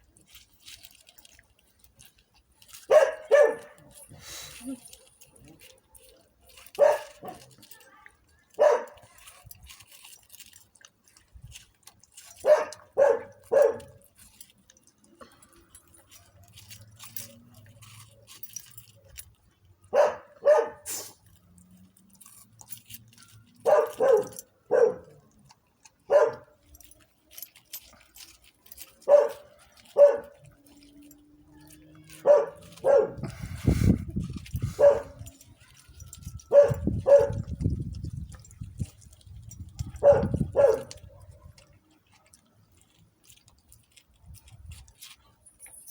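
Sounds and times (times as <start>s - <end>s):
dog barking: 2.9s - 4.0s, 6.7s - 7.5s, 8.5s - 9.0s, 12.4s - 14.0s, 19.9s - 20.9s, 23.6s - 25.2s, 26.1s - 26.5s, 29.0s - 30.4s, 32.1s - 33.3s, 34.8s - 35.3s, 36.4s - 37.6s, 40.0s - 41.2s.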